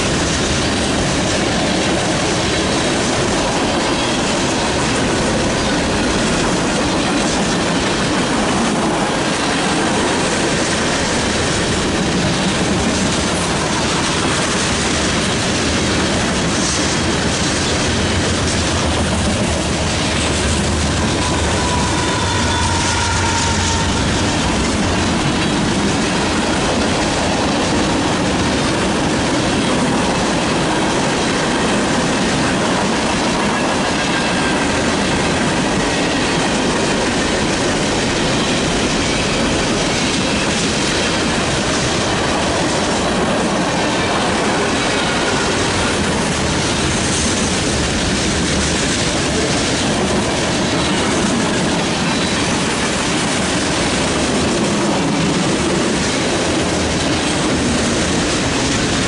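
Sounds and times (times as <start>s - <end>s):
freight train wheels rumbling: 0.0s - 59.0s
faint high wheel squeals: 21.1s - 24.4s.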